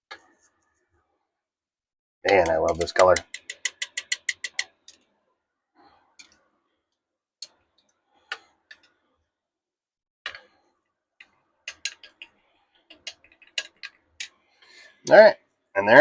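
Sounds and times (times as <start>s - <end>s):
light clicks and taps of tools: 2.3s - 5.1s, 6.2s - 6.4s, 7.4s - 9.0s, 11.2s - 14.4s.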